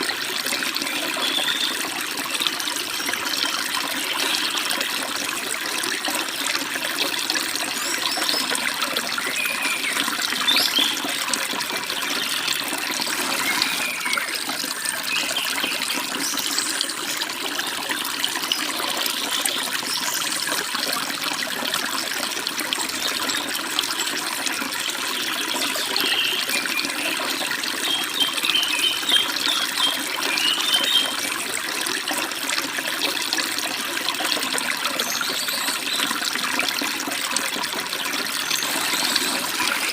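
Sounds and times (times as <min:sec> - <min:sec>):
stream splashing over rocks: 0:00.0 - 0:39.9
birds chirping: 0:07.7 - 0:11.2, 0:11.8 - 0:20.5, 0:25.1 - 0:31.3, 0:38.0 - 0:39.9.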